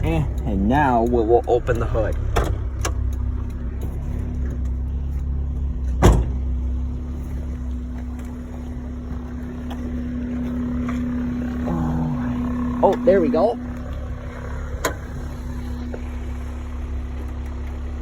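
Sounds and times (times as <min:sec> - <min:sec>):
car engine idling: 0:00.0 - 0:18.0
hood release clunk: 0:01.6 - 0:06.6, 0:13.7 - 0:16.4.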